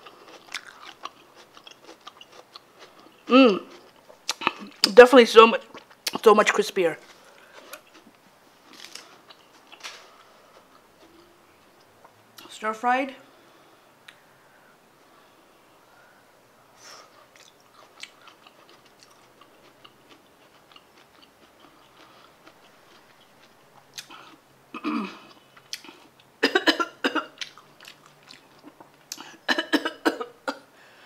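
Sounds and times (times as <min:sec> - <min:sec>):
person chewing crunchy cabbage: 0:00.0 - 0:04.9, 0:05.7 - 0:06.3, 0:07.0 - 0:12.2, 0:17.1 - 0:26.4, 0:27.4 - 0:29.5
person coughing: 0:24.8 - 0:25.3, 0:26.4 - 0:27.3, 0:29.2 - 0:30.6.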